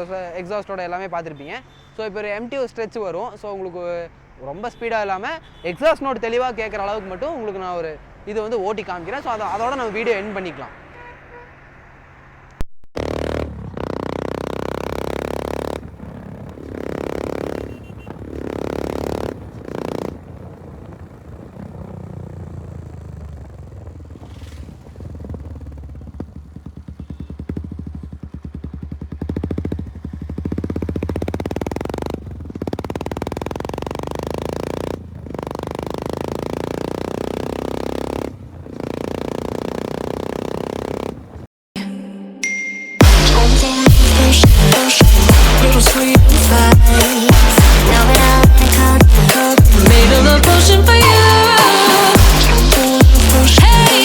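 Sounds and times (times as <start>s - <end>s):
motorcycle exhaust note: 13.0s - 41.5s, 43.0s - 54.0s.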